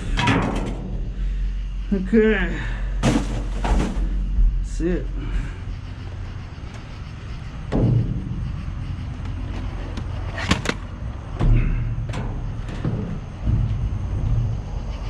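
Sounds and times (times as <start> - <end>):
steady low rumble: 0.0 - 15.0
junk knocking in a dumpster: 3.0 - 4.5.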